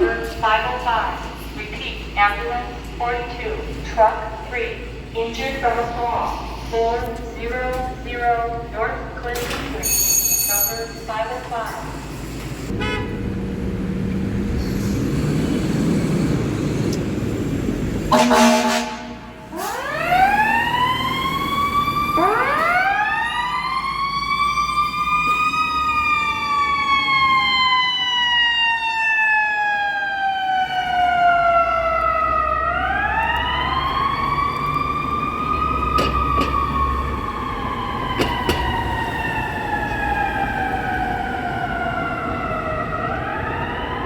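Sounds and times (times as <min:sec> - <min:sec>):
truck engine rumbling: 0:11.6 - 0:24.1, 0:30.6 - 0:43.6
mechanical sirens wailing: 0:15.8 - 0:44.0.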